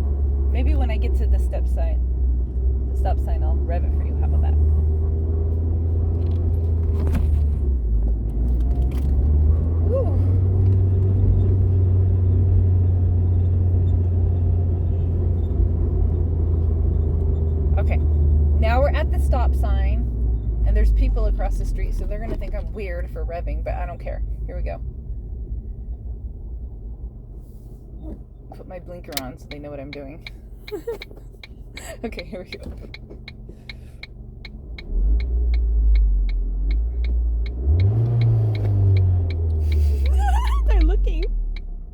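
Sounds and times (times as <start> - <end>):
car engine hum: 0.0 - 41.9
road noise inside car: 0.0 - 41.9
turn signal clicking: 28.0 - 41.9.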